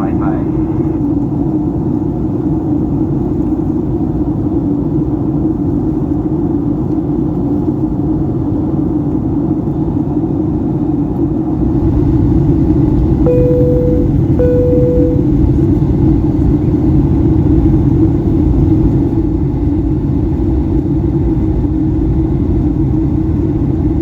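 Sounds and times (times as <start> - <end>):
airplane cabin rumble: 11.5 - 24.0
short steady tone: 13.3 - 15.4.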